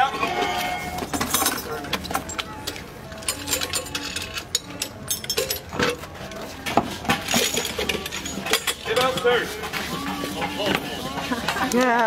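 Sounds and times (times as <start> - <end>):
metallic clinks of tools: 3.2 - 5.9
faint crowd voices: 5.8 - 12.0.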